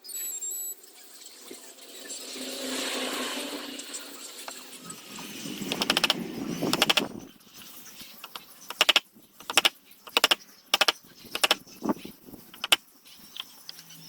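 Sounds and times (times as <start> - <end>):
rapid clicks: 5.2 - 7.3, 8.2 - 11.7, 12.5 - 13.8.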